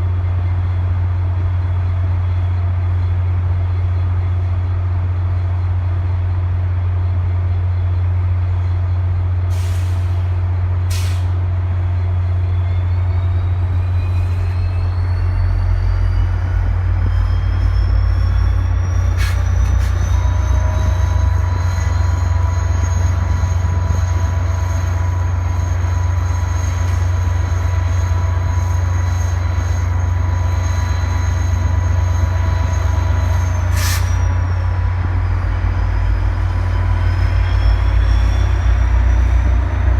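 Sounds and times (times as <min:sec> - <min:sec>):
diesel locomotive rumble: 0:00.0 - 0:39.9
rising locomotive whine: 0:00.0 - 0:39.9
air brake hisses: 0:09.5 - 0:11.4, 0:19.1 - 0:20.0, 0:33.6 - 0:34.3.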